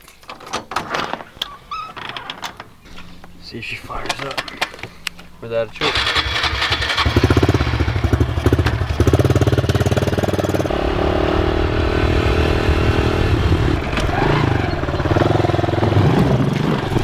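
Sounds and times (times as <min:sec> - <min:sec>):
small motorbike engine idling: 0:04.7 - 0:17.0.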